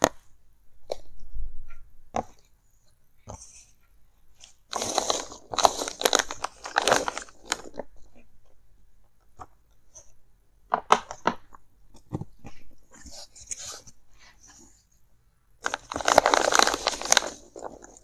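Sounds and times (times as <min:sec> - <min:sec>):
packaging crinkling and rustling: 0:04.7 - 0:08.2, 0:15.6 - 0:18.0.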